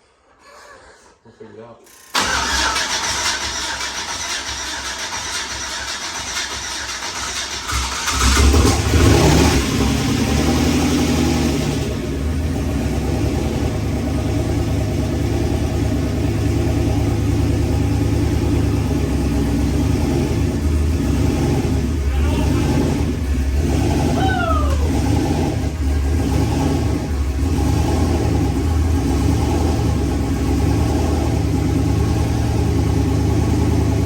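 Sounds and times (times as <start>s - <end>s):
starter motor cranking: 1.9s - 8.9s
car engine revving and idling: 2.2s - 34.0s.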